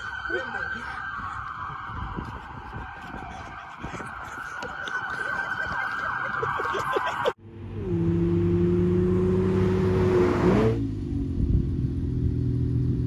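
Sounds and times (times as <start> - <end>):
car engine at high revs: 7.4 - 13.0.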